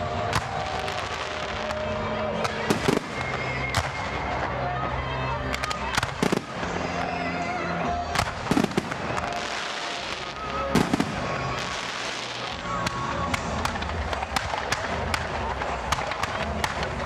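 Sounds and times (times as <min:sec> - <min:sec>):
fireworks bangs: 0:00.0 - 0:17.0
crackling hiss of burning stars: 0:05.8 - 0:17.0.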